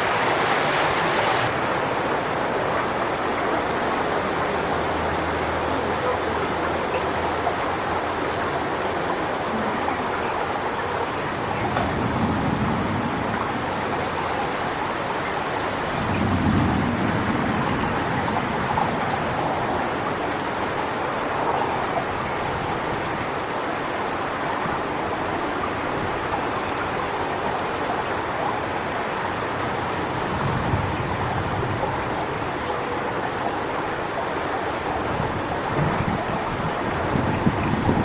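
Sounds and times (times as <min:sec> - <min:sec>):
wind rustling palm fronds: 0:00.0 - 0:38.0
wind gusts buffeting microphone: 0:10.5 - 0:38.0.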